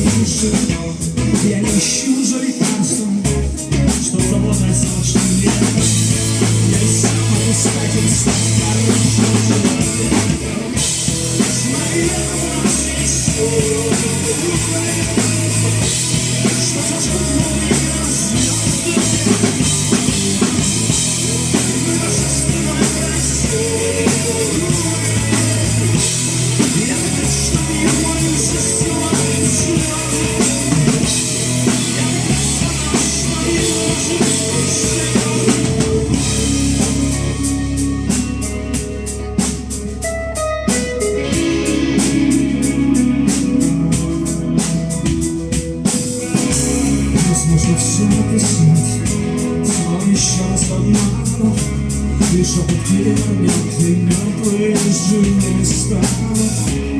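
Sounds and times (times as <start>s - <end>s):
rock band playing: 0.0s - 56.9s.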